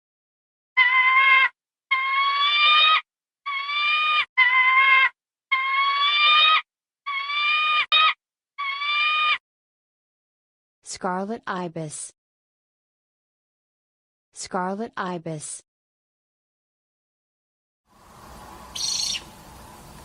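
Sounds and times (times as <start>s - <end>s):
falcon screaming calls: 0.8s - 9.4s, 18.7s - 19.3s.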